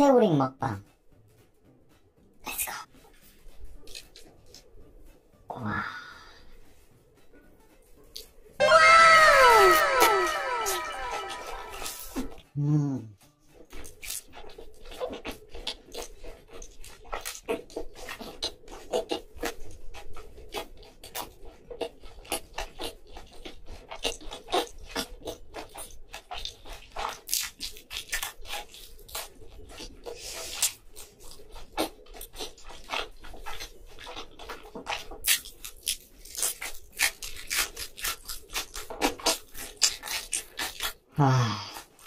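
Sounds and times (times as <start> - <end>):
close chewing crunches: 3.4 - 4.7, 13.6 - 42.0
wet mouth sounds: 20.5 - 42.0.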